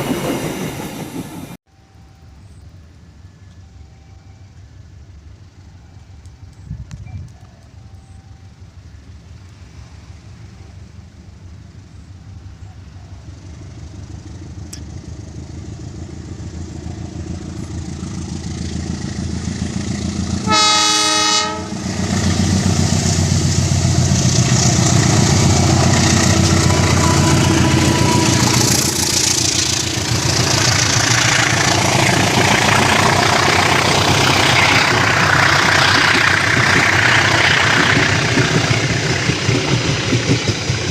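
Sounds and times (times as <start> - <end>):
diesel train engine rumble: 0.0 - 40.9
train horn: 20.4 - 22.3, 26.3 - 28.9
wheels on rails: 22.1 - 40.9.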